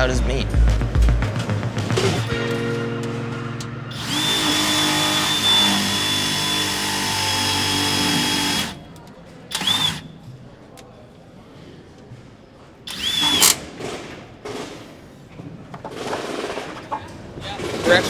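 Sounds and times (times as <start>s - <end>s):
power drill whining: 3.6s - 10.9s, 12.9s - 14.8s.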